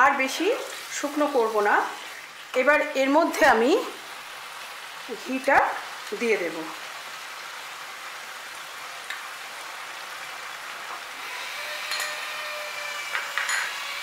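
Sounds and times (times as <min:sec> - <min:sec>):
curry sizzling in a pan: 0:00.0 - 0:14.0.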